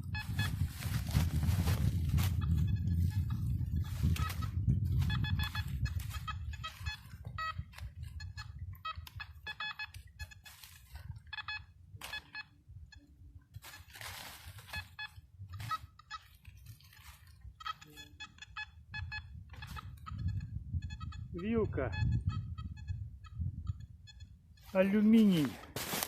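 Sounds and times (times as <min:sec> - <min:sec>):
metal detector beeping: 0:00.0 - 0:25.6
rustling: 0:13.6 - 0:17.4, 0:24.6 - 0:26.0.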